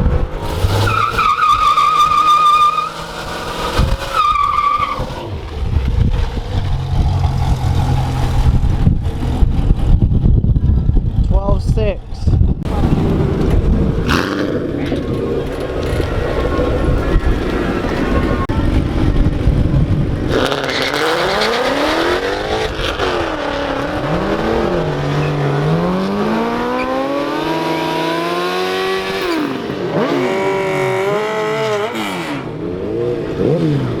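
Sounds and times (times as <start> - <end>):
car accelerating through gears: 12.7 - 18.6, 20.2 - 34.0.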